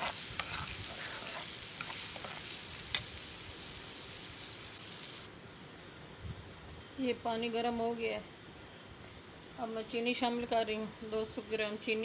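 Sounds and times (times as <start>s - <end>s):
steel spoon scraping a pan: 0.0s - 3.4s
food sizzling in a pan: 0.0s - 5.3s.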